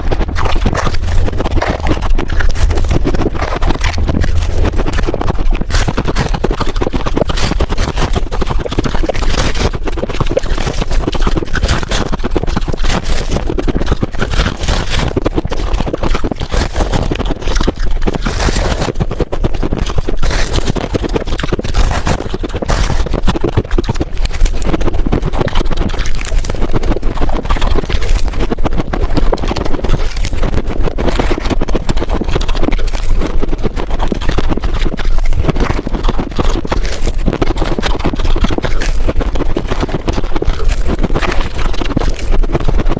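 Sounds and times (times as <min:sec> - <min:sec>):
ice being chewed: 0:00.0 - 0:42.9.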